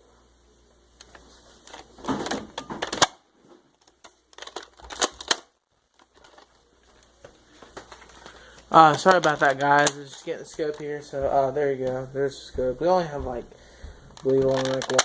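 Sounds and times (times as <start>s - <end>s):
hard plastic clicking and rattling: 1.0s - 10.9s, 14.1s - 15.0s.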